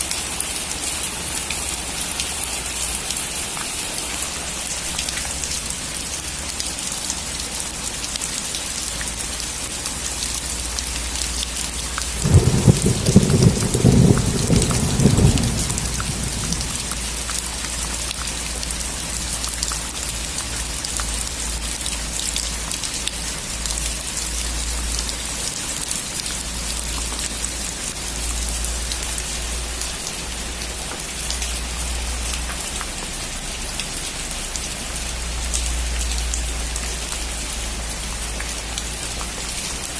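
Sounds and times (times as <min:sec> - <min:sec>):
steady rain falling: 0:00.0 - 0:39.9
thunder clap and rumble: 0:12.0 - 0:17.7.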